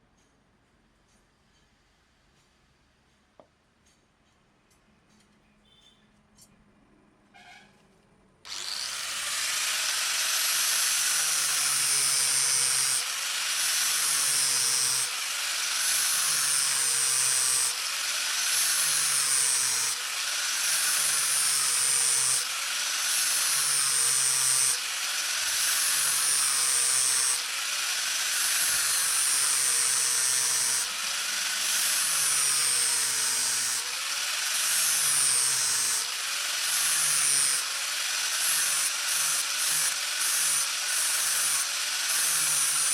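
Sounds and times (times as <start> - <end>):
electric power tool grinding metal: 8.5 - 42.9.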